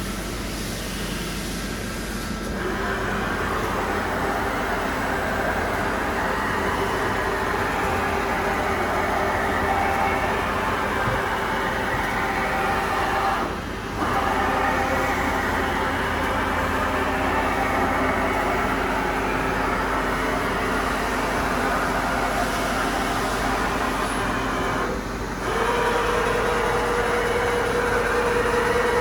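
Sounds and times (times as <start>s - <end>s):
machine running with steady hum: 0.0s - 29.0s.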